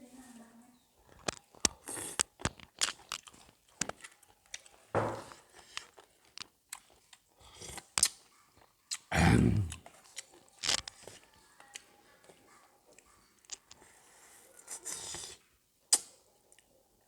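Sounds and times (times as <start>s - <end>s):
person chewing and crunching food: 1.0s - 16.6s.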